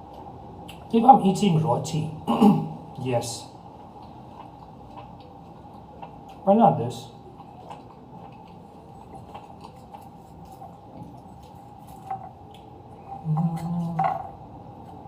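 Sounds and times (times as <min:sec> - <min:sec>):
wet chewing: 0:03.6 - 0:15.0
person humming: 0:13.2 - 0:14.1.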